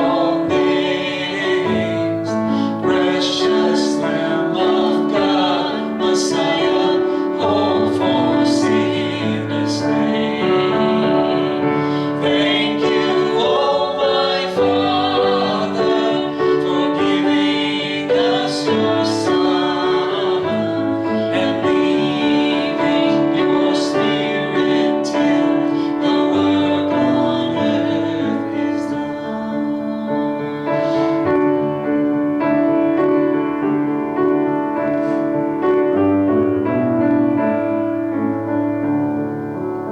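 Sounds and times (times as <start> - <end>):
person singing: 0.0 - 31.7
piano accompaniment: 0.0 - 39.9.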